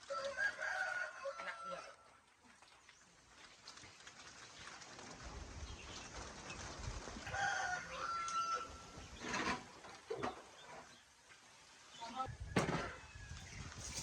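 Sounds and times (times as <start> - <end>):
rooster crowing: 0.1 - 2.0, 7.3 - 9.0.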